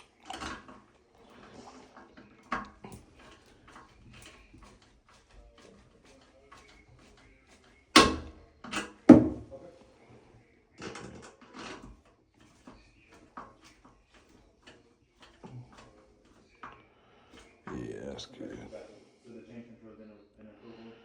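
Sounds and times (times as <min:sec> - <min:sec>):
hand tools knocking and clattering: 0:00.0 - 0:09.6, 0:10.8 - 0:17.7
light scrapes and taps: 0:10.8 - 0:17.7.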